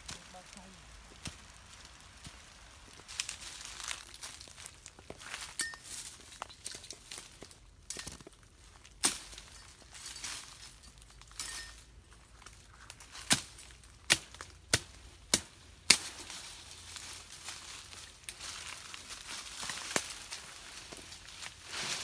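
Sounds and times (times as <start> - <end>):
faint rustle: 16.1 - 22.0.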